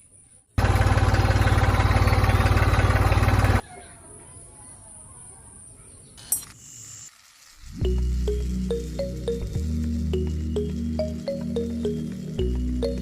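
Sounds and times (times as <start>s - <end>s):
motor running with fast pulse: 6.5s - 9.0s.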